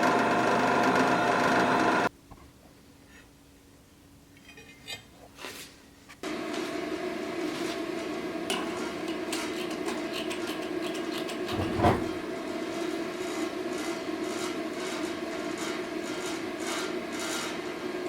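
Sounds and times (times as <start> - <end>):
workshop machine humming: 0.0 - 2.1
scraping: 11.4 - 12.2.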